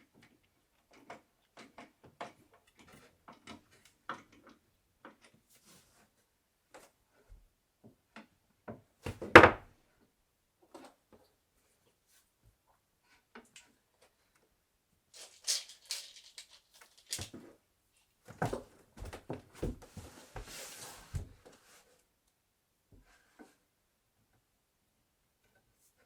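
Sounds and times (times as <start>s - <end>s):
wooden bed parts knocking: 9.1s - 9.7s.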